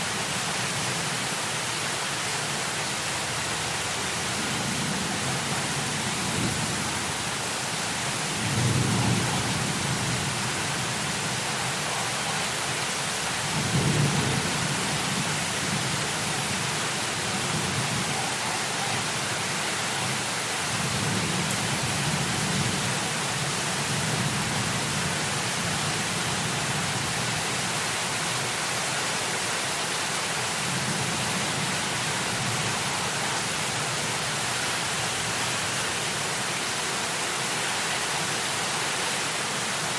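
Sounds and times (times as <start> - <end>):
heavy rain hiss: 0.0 - 39.9
rolling thunder rumbles: 8.3 - 11.5.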